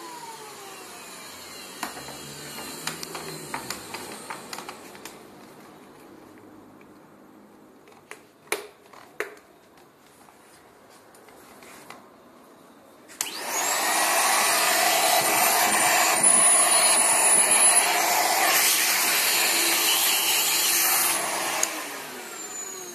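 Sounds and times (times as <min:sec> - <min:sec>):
clicks: 0:02.6 - 0:07.0
dryer turbine rushing air: 0:13.2 - 0:22.1.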